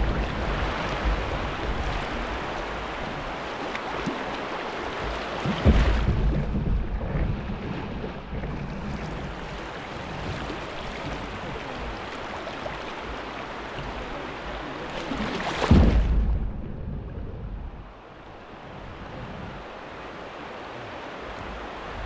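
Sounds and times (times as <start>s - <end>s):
wind buffeting microphone: 0.0s - 20.2s
moving water: 0.0s - 22.0s.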